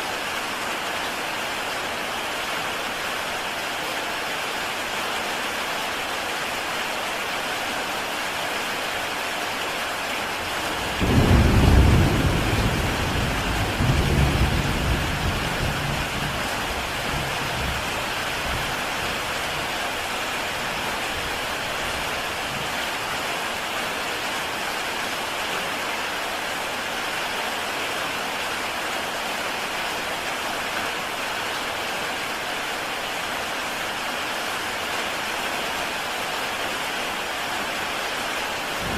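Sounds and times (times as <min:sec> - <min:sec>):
heavy rain on a tile roof: 0:00.0 - 0:38.9
thunder rumble: 0:10.8 - 0:16.4.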